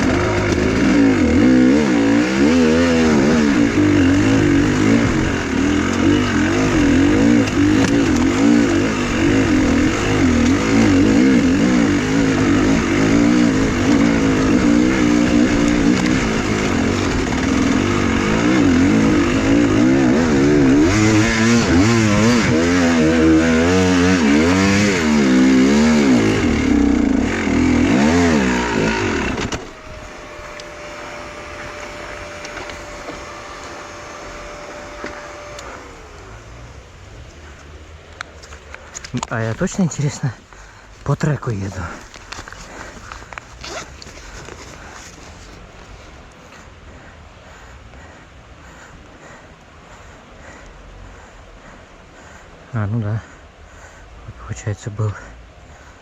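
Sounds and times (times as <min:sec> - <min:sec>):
motorcycle engine revving: 0:00.0 - 0:46.6
faint steady whine: 0:28.5 - 0:56.0.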